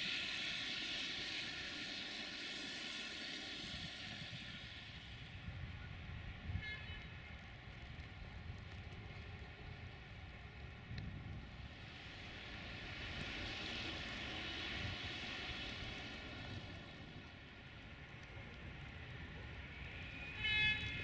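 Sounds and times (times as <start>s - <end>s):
train running noise: 0.0s - 21.0s
short high train toot: 20.1s - 21.0s.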